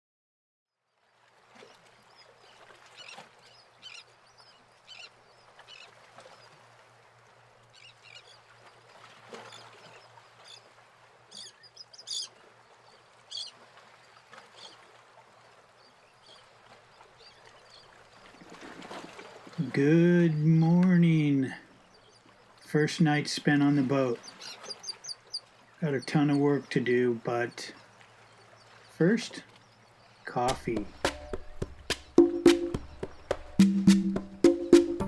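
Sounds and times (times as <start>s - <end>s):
birds chirping: 19.6s - 35.0s.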